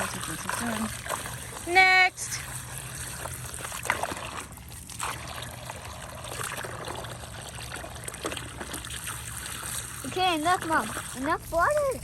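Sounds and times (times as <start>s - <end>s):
water trickling into a container: 0.0s - 12.0s.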